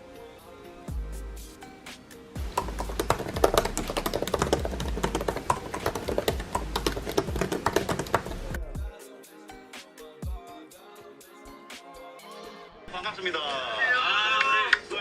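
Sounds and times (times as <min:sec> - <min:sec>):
background music: 0:00.0 - 0:15.0
fast typing on keyboard: 0:02.4 - 0:08.7.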